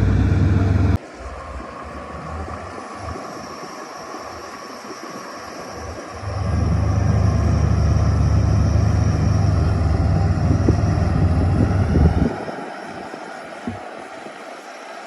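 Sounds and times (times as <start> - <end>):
bulldozer diesel engine running: 0.0 - 1.6, 6.1 - 12.3.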